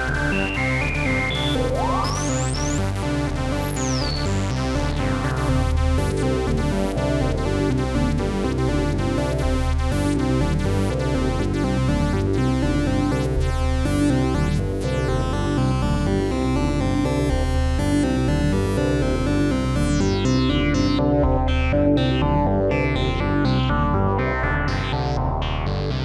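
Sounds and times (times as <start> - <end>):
falling high pitch sweeps: 0.0 - 2.8
synthesizer sequenced pattern: 0.0 - 5.2.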